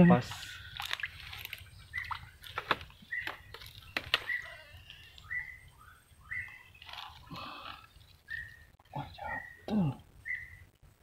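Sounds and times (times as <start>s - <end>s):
bird whistling: 4.2s - 6.8s, 8.3s - 10.6s.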